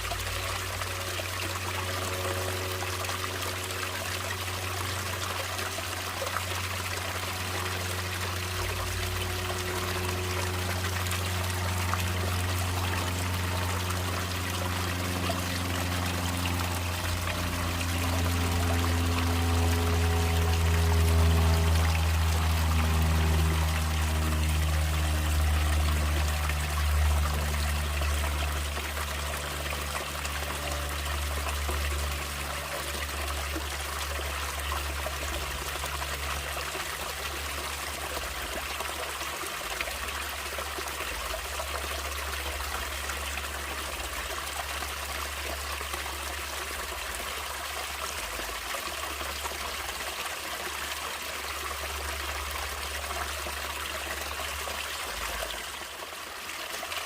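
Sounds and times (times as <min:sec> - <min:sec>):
stream trickling and flowing: 0:00.0 - 0:57.0
low rumble: 0:06.6 - 0:38.6.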